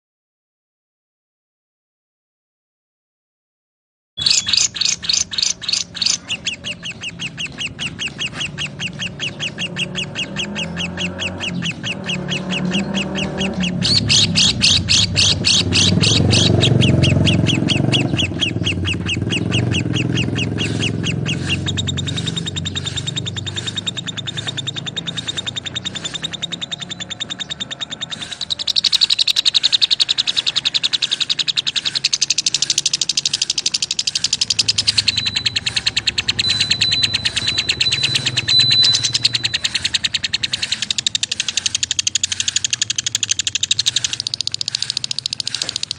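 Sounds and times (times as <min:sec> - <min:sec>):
birds chirping fast chatter: 0:04.2 - 0:45.9.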